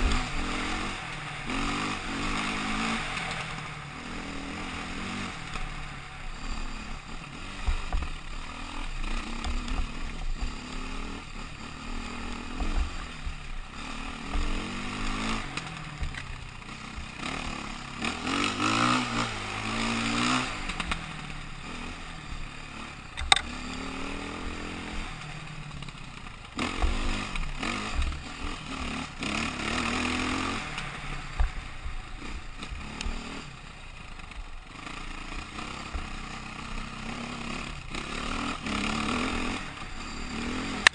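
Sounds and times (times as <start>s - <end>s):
motorcycle engine revving: 0.0s - 40.9s
sharp click: 23.2s - 23.5s.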